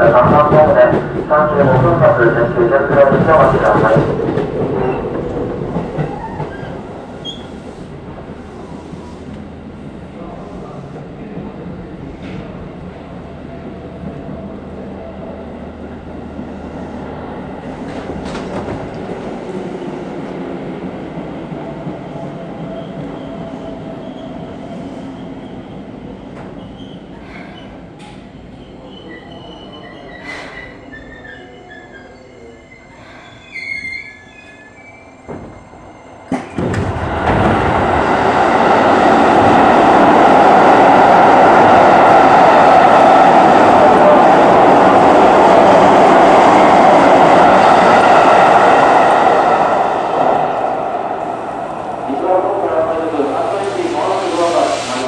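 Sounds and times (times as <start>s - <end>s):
loud steady rushing noise: 36.8s - 55.0s.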